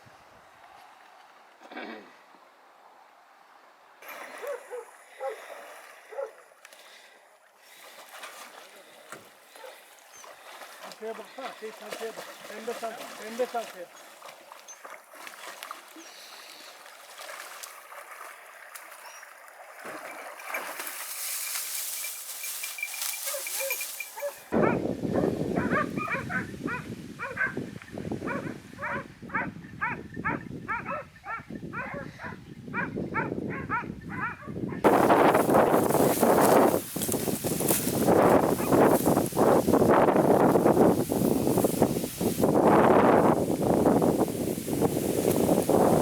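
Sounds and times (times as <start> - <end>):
dogs barking: 4.4 - 5.4, 6.1 - 6.4, 23.3 - 27.6, 28.3 - 34.5.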